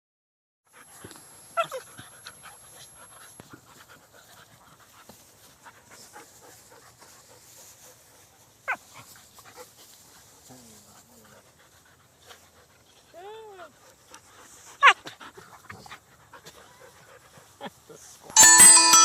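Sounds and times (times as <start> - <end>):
dogs panting and scuffling: 0.7 - 18.4.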